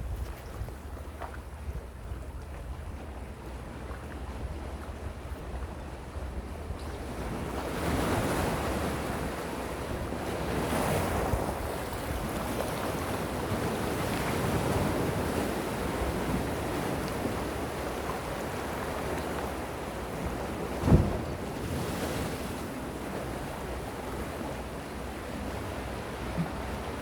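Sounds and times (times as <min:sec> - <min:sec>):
wind noise on microphone: 0:00.0 - 0:03.2, 0:04.3 - 0:17.5.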